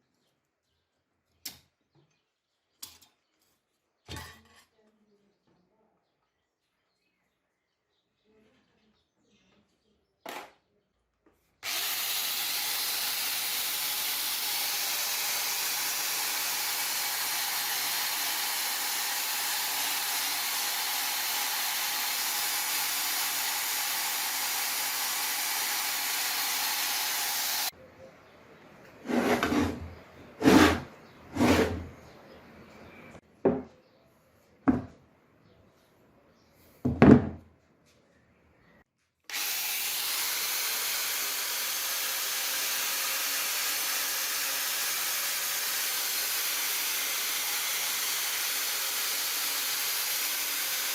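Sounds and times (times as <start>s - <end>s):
loud steady hiss: 11.7s - 27.7s.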